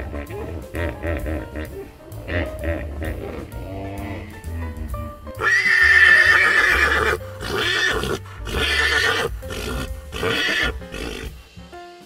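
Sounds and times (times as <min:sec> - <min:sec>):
background music: 0:00.0 - 0:12.0
animal calling roughly: 0:05.4 - 0:11.3.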